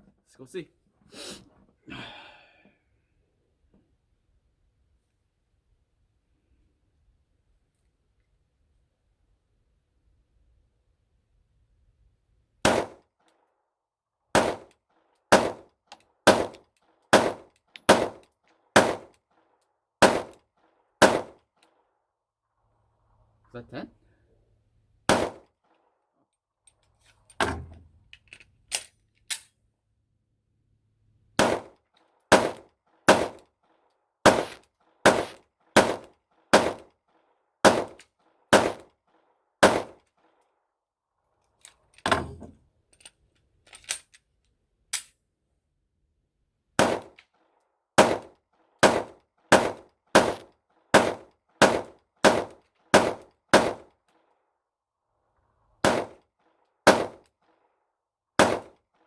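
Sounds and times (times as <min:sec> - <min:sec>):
gunshots: 0:12.7 - 0:13.0, 0:14.4 - 0:14.7, 0:15.3 - 0:15.7, 0:16.3 - 0:18.2, 0:18.8 - 0:19.1, 0:20.0 - 0:20.4, 0:21.0 - 0:21.4, 0:25.1 - 0:25.5, 0:31.4 - 0:33.4, 0:34.2 - 0:36.9, 0:37.6 - 0:38.9, 0:39.6 - 0:40.0, 0:46.8 - 0:47.2, 0:48.0 - 0:53.9, 0:55.8 - 0:56.2, 0:56.8 - 0:57.3, 0:58.4 - 0:58.8
faint distant gunshots: 0:16.3 - 0:19.1, 0:20.0 - 0:20.4, 0:21.0 - 0:21.4, 0:25.1 - 0:25.5, 0:31.4 - 0:33.4, 0:34.2 - 0:36.9, 0:37.6 - 0:39.0, 0:39.6 - 0:40.0, 0:48.0 - 0:53.9, 0:55.8 - 0:56.2, 0:58.4 - 0:58.8.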